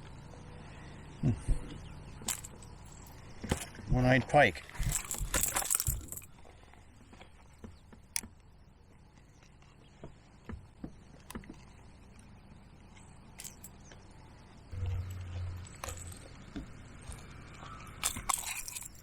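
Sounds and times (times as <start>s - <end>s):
small handling clicks and knocks: 2.2s - 3.8s, 4.8s - 6.3s, 13.0s - 14.0s, 18.0s - 19.0s.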